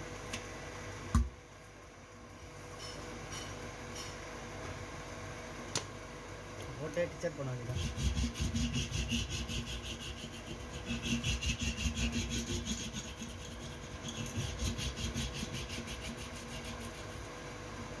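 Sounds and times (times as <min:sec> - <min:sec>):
hand tool scraping rubber: 0:07.7 - 0:17.3.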